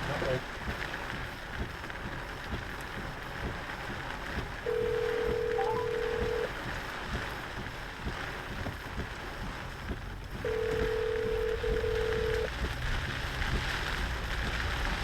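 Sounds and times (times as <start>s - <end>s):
rain and wet road noise: 0.0s - 15.0s
telephone ringback tone: 4.7s - 6.5s, 10.5s - 12.5s.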